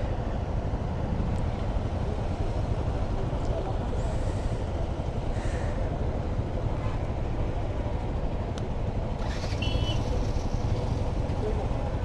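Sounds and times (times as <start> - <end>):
motorcycle engine and road noise: 6.2 - 12.0.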